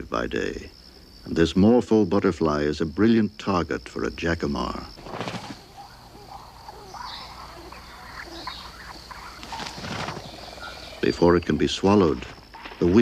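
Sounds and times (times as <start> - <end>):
high insect drone: 0.0 - 13.0
faint bird chirps: 4.9 - 13.0.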